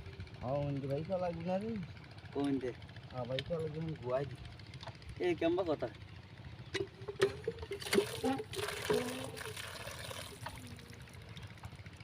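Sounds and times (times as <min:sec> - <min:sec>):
sharp knocks and clatters: 0:06.7 - 0:08.0
liquid pouring and trickling: 0:07.1 - 0:11.8.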